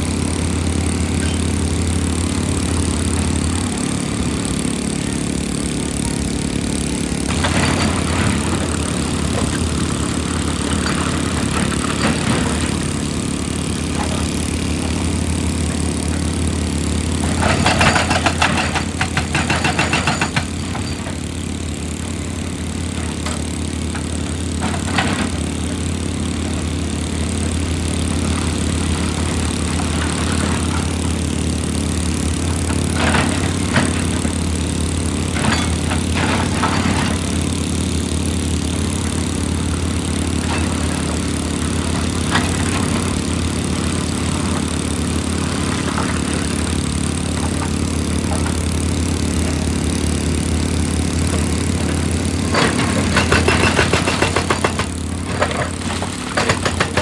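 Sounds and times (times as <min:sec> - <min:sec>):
large engine humming: 0:00.0 - 0:57.0.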